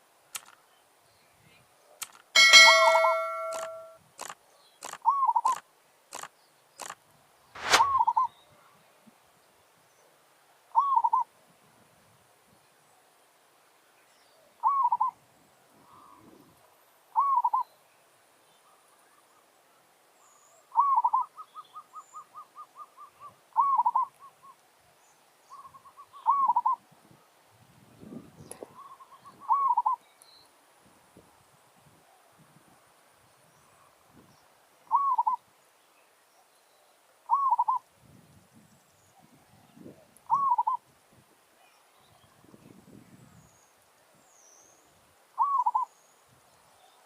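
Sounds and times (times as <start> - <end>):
sharp clicks: 0.3 - 0.6, 2.0 - 2.3, 3.4 - 7.0
doves cooing: 40.3 - 40.8.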